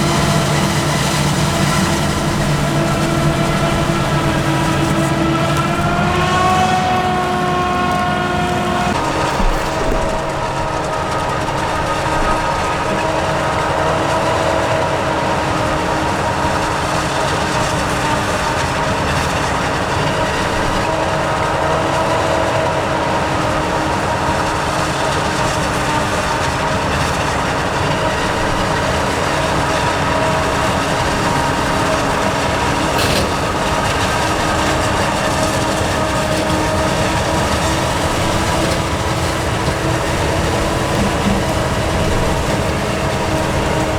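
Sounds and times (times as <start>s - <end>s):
farm machinery engine drone: 0.0s - 43.9s
steady machine whine: 27.2s - 43.9s.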